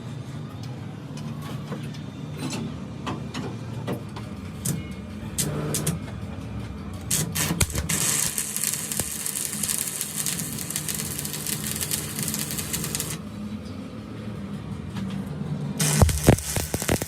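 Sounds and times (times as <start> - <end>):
machinery humming: 7.0 - 14.5, 15.5 - 17.0
loud hiss: 15.8 - 17.0.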